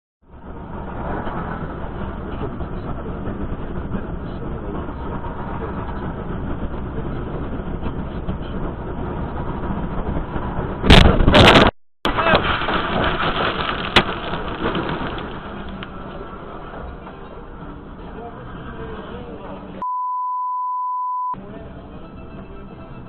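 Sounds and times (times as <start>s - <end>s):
vehicle and road rumble: 0.2s - 19.9s, 20.9s - 23.0s
sudden loud burst of noise: 9.3s - 16.4s.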